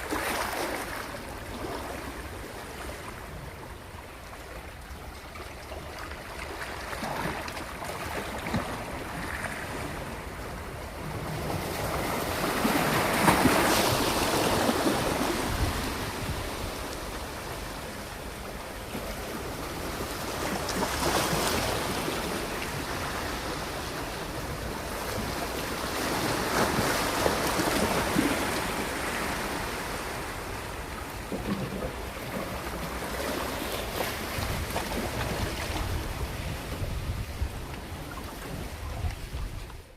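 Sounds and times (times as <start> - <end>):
sea waves washing on shore: 0.0 - 39.9
wind on microphone: 11.1 - 17.3, 33.9 - 39.9.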